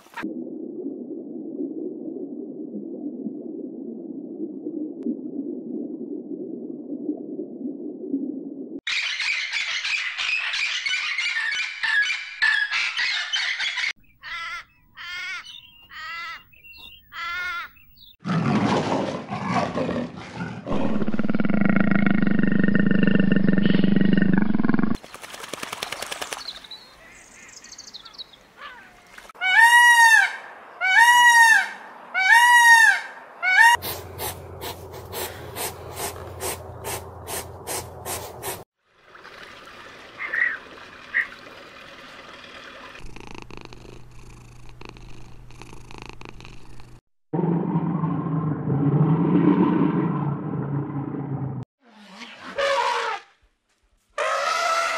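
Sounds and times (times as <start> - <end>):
rising and falling animal calls: 19.2 - 25.0.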